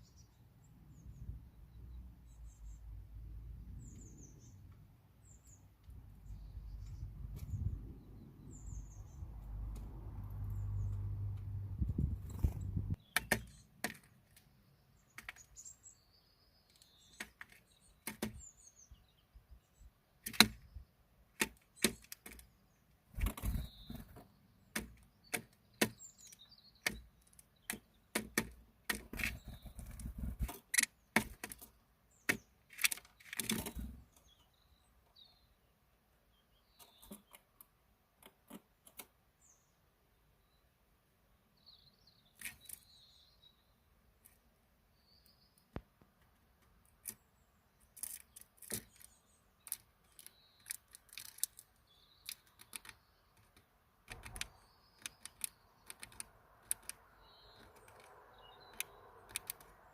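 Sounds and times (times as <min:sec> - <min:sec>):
faint high bird chirps: 0:00.0 - 0:09.6, 0:21.6 - 0:28.4, 0:29.0 - 0:37.6, 0:39.4 - 0:44.0, 0:47.1 - 0:59.9
sharp clicks and taps: 0:26.8 - 0:31.7, 0:49.7 - 0:59.8.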